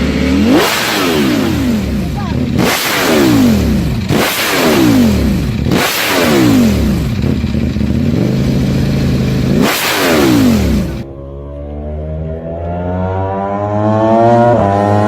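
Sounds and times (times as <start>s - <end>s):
motorcycle engine idling: 0.0s - 11.1s
motorcycle engine revving: 0.0s - 15.0s.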